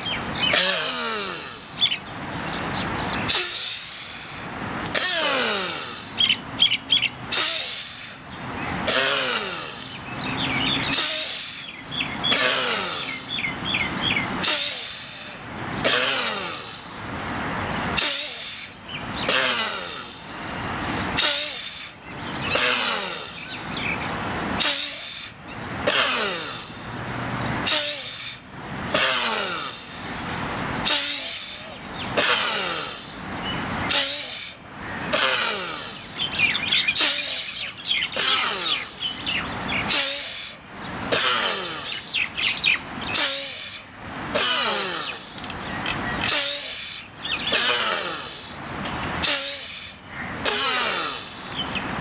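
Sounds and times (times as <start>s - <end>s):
forceful rapid nose breathing: 3.3s - 6.2s, 33.9s - 40.6s, 46.3s - 48.6s.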